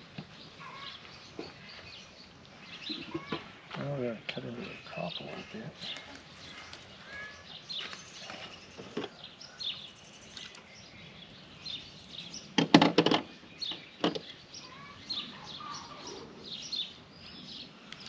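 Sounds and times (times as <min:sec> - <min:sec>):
birds chirping: 0:00.0 - 0:18.0
knocks and clatter: 0:12.6 - 0:13.3.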